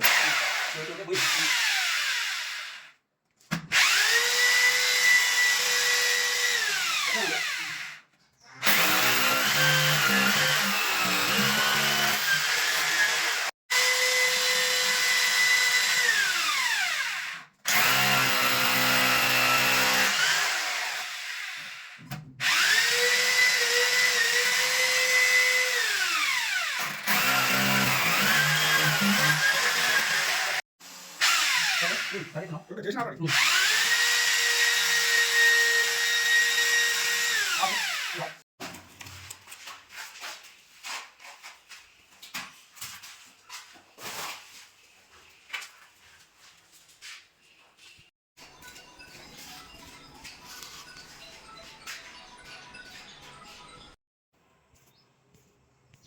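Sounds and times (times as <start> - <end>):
electric power drill whining: 0.0 - 3.0, 3.7 - 8.0, 8.6 - 32.3, 33.3 - 38.4.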